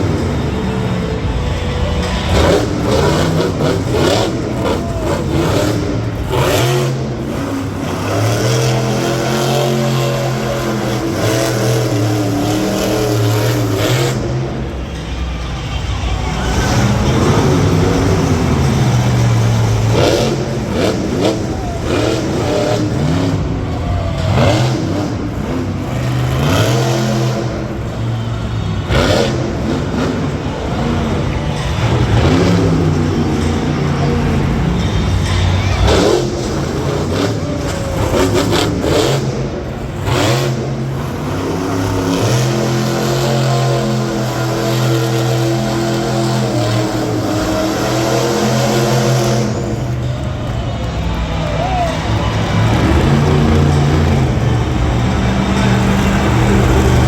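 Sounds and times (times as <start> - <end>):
monster truck engines revving: 0.0 - 57.0.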